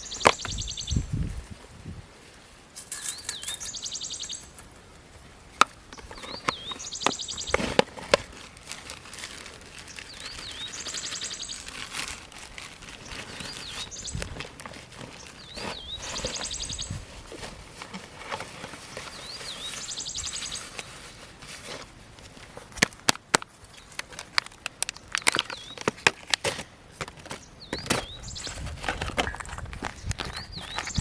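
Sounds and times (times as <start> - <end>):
rustling: 0.0 - 31.0
bird whistling call: 15.4 - 16.9, 19.2 - 20.7.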